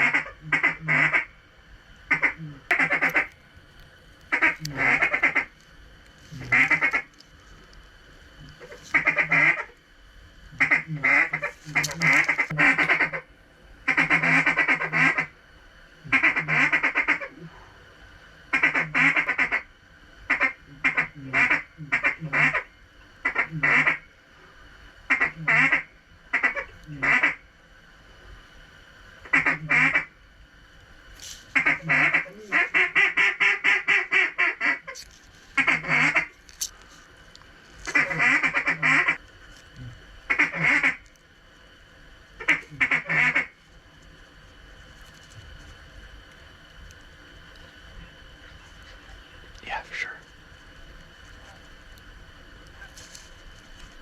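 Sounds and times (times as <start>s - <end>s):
mallard quacking: 0.0s - 1.3s, 2.1s - 3.3s, 4.3s - 5.5s, 6.4s - 7.1s, 8.6s - 9.7s, 10.6s - 13.2s, 13.9s - 15.3s, 16.1s - 17.3s, 18.6s - 19.6s, 25.1s - 25.8s, 31.6s - 35.0s, 35.6s - 36.3s, 37.9s - 39.2s, 40.3s - 41.0s, 42.4s - 43.5s.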